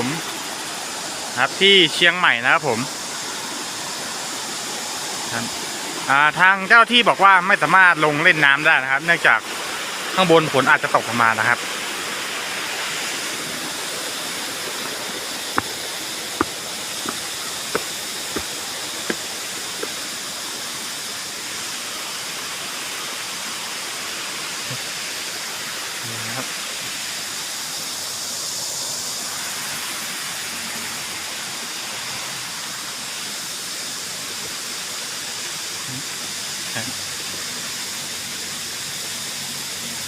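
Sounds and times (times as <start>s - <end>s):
waterfall rushing: 7.9s - 25.9s.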